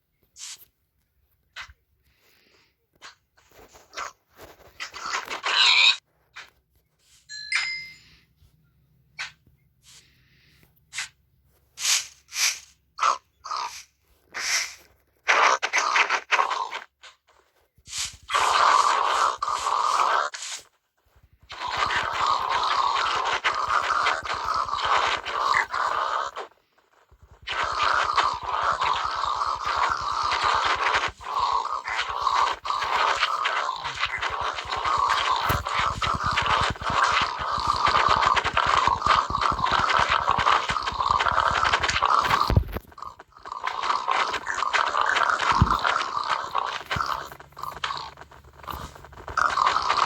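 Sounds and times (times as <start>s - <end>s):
handling clicks and scraping: 19.9s - 50.0s.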